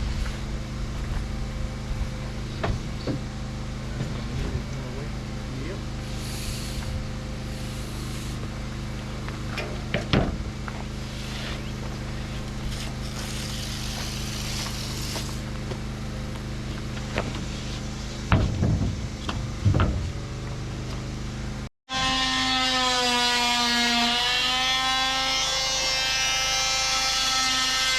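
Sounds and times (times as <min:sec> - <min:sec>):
engine running: 0:00.0 - 0:21.7
sharp knocks and clatters: 0:18.3 - 0:20.2.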